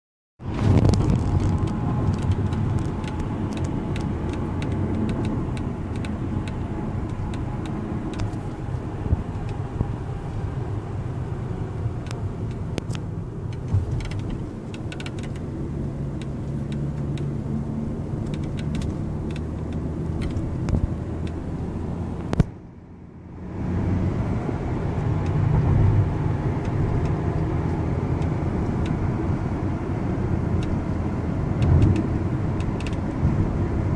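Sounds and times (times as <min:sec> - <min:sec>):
road noise in car cabin: 0:00.4 - 0:33.9
sunroof clicks and ticks: 0:00.8 - 0:09.9, 0:12.0 - 0:15.5, 0:18.0 - 0:21.4, 0:31.6 - 0:33.2.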